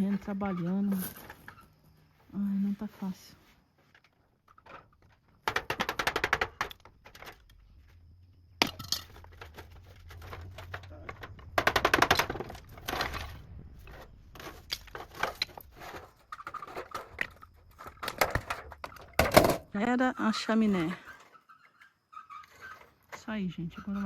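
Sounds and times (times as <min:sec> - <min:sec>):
stones and rubble clattering down: 0:08.6 - 0:19.7.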